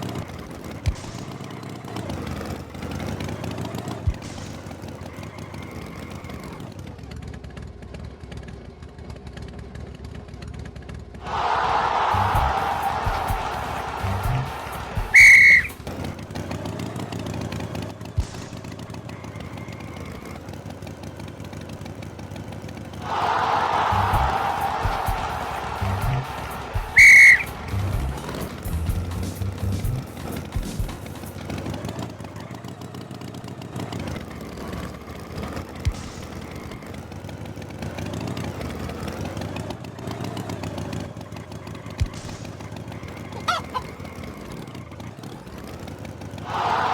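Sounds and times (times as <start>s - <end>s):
cartoon tractor engine running: 0.0s - 46.9s
high whistle blast: 11.2s - 15.8s, 23.1s - 30.0s
music: 11.3s - 15.8s, 23.1s - 31.4s.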